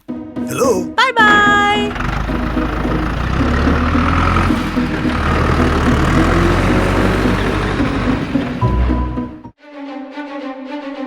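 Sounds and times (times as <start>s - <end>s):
truck engine rumbling: 0.6s - 9.5s.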